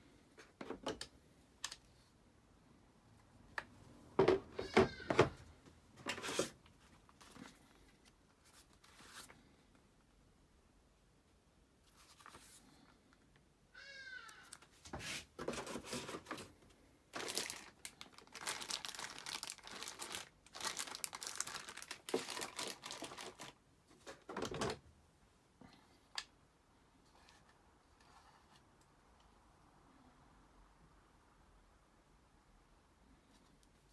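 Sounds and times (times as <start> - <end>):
packaging rustling and tearing: 17.2 - 23.6.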